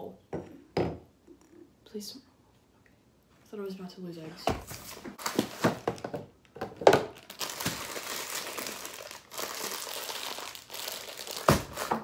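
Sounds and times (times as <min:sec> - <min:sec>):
packet crinkling and rustling: 0:05.2 - 0:06.1, 0:07.0 - 0:12.0.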